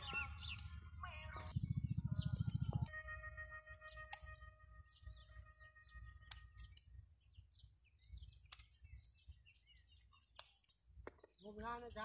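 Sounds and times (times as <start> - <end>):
birds chirping: 0.0 - 12.0
held musical note: 2.8 - 6.4
sharp clicks: 6.1 - 6.9, 8.2 - 9.2.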